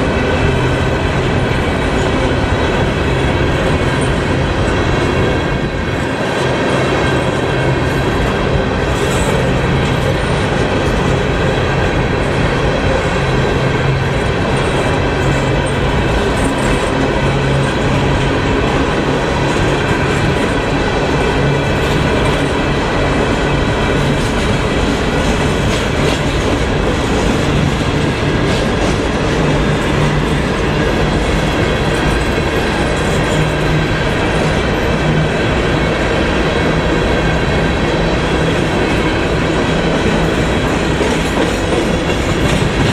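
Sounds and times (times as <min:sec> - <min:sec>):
train wheels on rails: 0:00.0 - 0:42.9.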